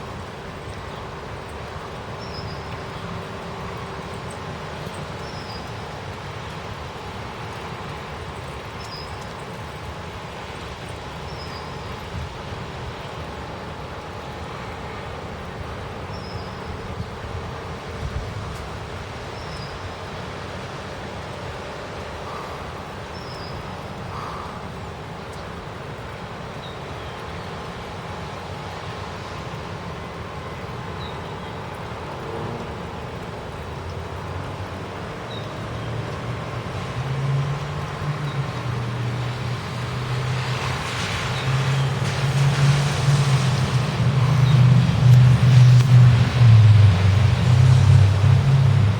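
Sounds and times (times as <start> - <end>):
road traffic noise: 0.0 - 48.9
vehicle engine hum: 27.6 - 48.9.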